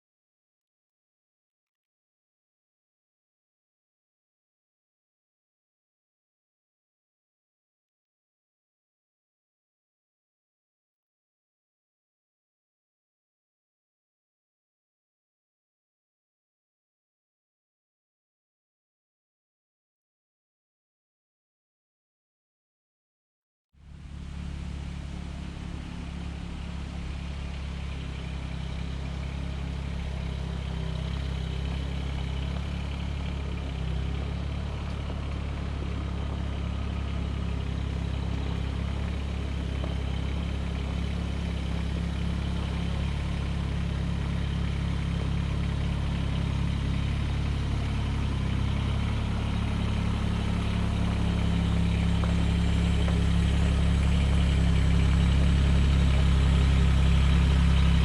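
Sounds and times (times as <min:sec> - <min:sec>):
engine running steadily: 0:23.8 - 0:58.0.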